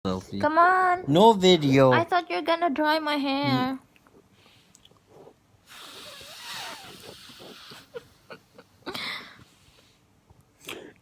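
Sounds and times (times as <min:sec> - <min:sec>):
breathy puff: 0:05.6 - 0:08.3
person blowing breathy hiss: 0:05.6 - 0:10.0.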